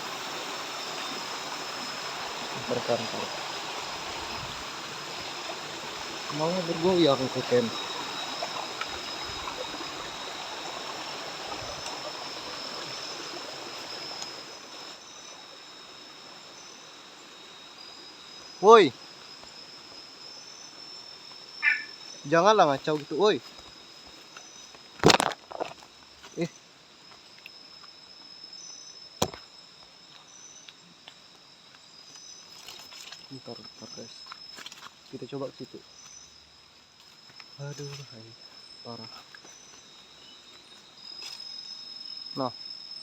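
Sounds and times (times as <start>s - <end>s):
flowing stream water: 0.0s - 15.6s
crickets droning: 0.0s - 43.0s
insects buzzing: 0.0s - 43.0s.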